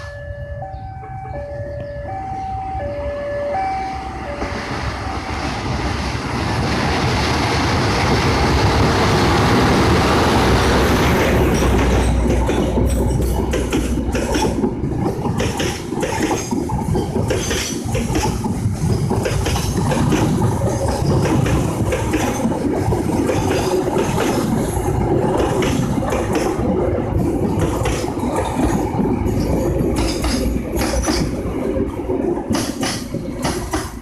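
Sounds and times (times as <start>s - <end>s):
train rumble: 0.0s - 34.0s
wheels clattering over rail joints: 10.3s - 34.0s.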